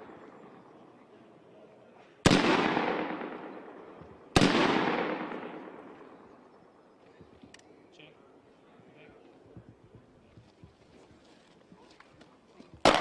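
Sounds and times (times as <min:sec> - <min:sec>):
rifle shots with echo: 0:02.2 - 0:06.5.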